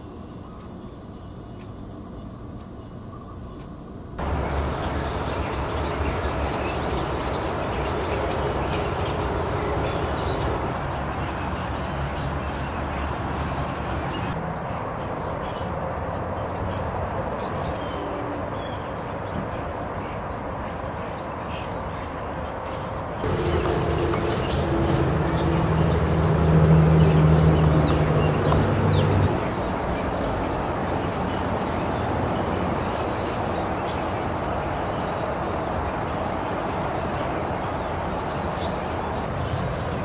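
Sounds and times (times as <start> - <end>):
small birds chirping: 3.0 - 40.0
low rumble: 23.2 - 29.8.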